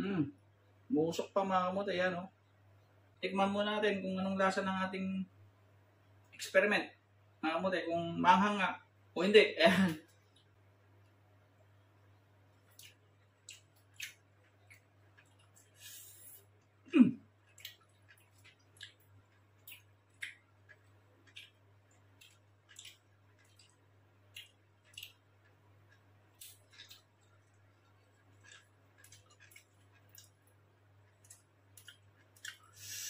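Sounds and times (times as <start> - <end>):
faint low hum: 0.0 - 33.0
man chewing food: 10.1 - 11.2, 12.0 - 33.0
wet mouth clicks and smacks: 17.5 - 25.2.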